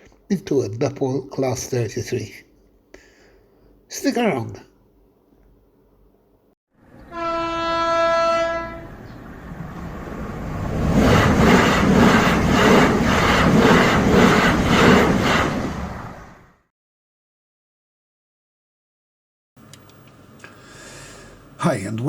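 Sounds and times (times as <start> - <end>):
train horn: 7.0 - 9.0.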